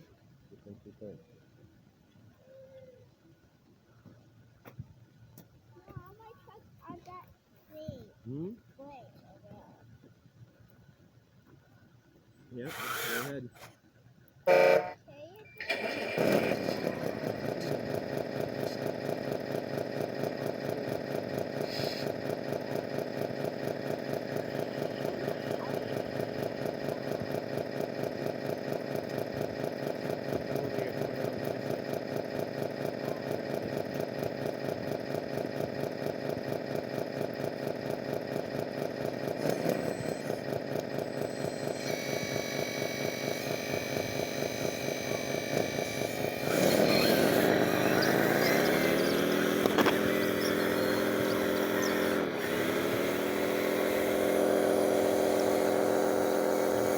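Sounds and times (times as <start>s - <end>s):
pulsing machine engine idle: 12.6s - 13.7s, 15.6s - 56.9s.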